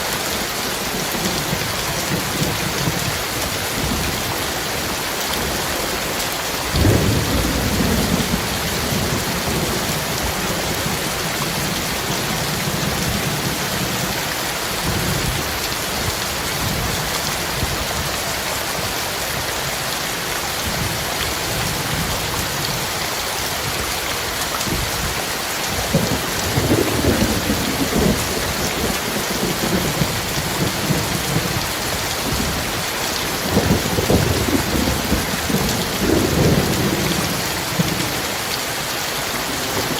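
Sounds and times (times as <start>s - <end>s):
heavy rain falling: 0.0s - 39.9s
thunder rumbling: 6.7s - 14.1s, 25.8s - 38.3s.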